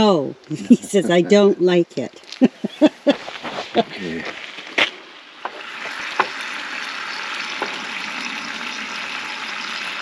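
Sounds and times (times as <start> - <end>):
food sizzling in a pan: 5.4 - 10.0.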